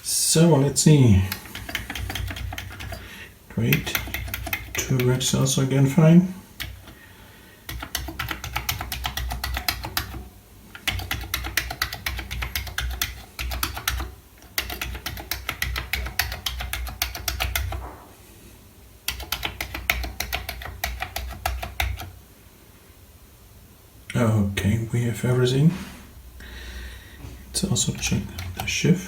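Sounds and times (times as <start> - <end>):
keyboard keystrokes clicking: 1.3 - 3.0, 3.6 - 5.2, 6.6 - 7.0, 7.7 - 17.8, 19.1 - 22.1.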